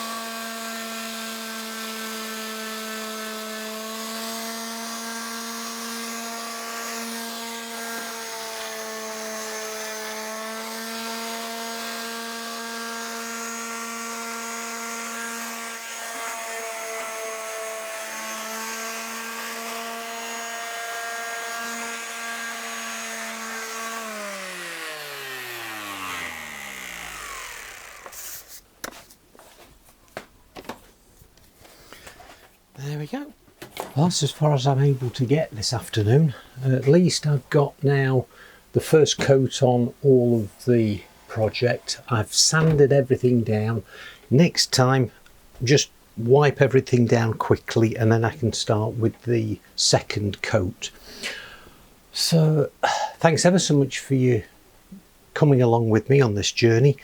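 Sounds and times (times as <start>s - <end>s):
electric sander on wood: 0.0s - 28.6s.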